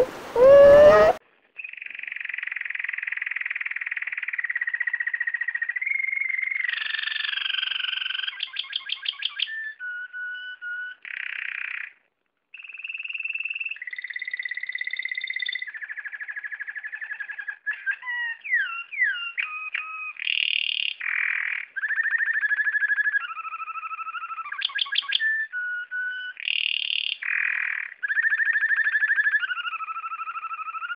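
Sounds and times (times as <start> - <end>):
cardinal singing: 0.0 - 1.2.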